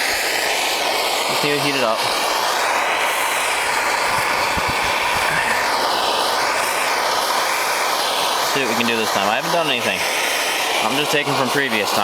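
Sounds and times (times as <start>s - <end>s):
heating tool blowing hiss: 0.0s - 12.0s.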